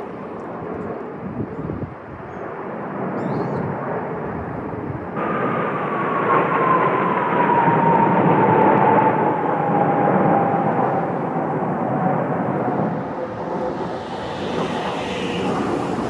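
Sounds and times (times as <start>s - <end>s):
jet roar flying over: 5.2s - 16.0s
turbine whine falling in pitch: 5.2s - 16.0s.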